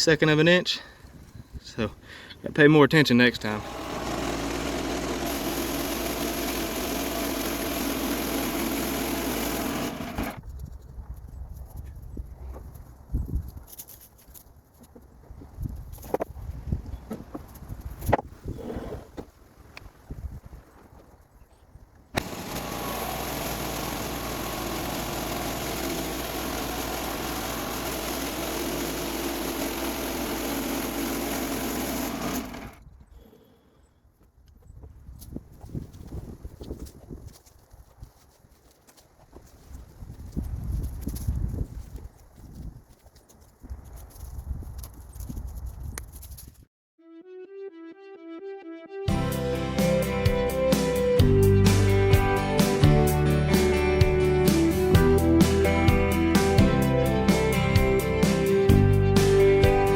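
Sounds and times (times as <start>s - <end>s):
small gasoline engine running: 3.4s - 10.4s, 22.2s - 32.8s, 52.6s - 59.9s.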